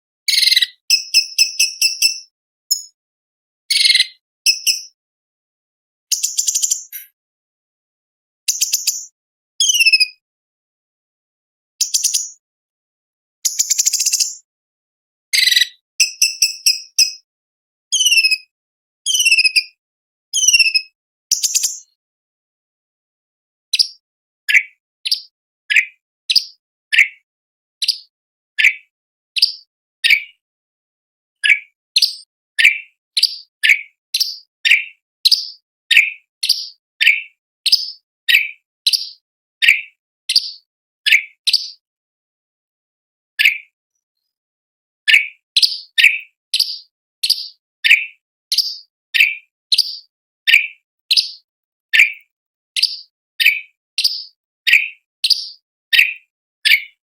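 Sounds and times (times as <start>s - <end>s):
bird chirps sliding down in pitch: 17.9s - 18.4s, 19.1s - 19.7s, 20.4s - 21.9s.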